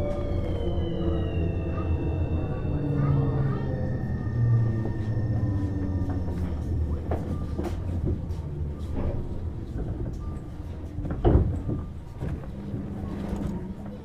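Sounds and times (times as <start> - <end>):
train interior hum: 0.0 - 14.0.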